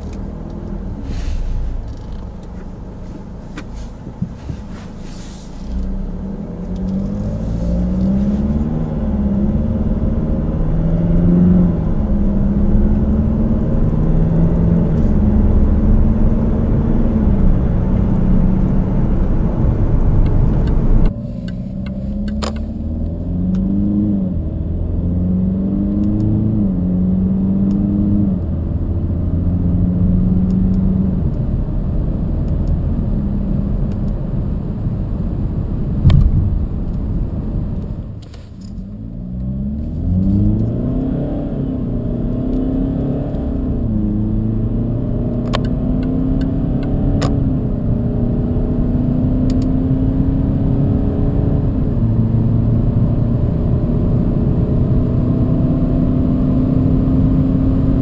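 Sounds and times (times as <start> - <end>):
car engine accelerating hard: 0.0 - 38.2, 38.8 - 58.0
sharp knock: 36.0 - 36.6.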